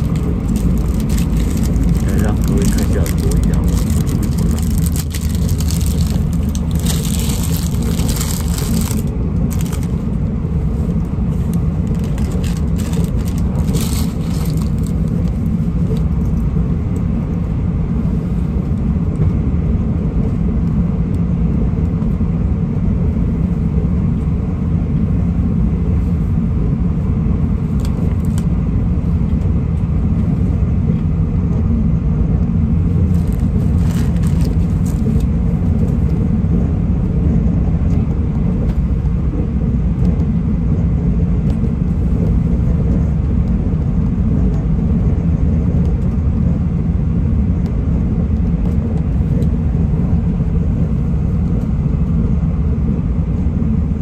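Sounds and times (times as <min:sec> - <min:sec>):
rustling: 0:00.0 - 0:10.0, 0:11.8 - 0:15.4, 0:33.0 - 0:35.2
train rumbling inside carriage: 0:00.0 - 0:54.0.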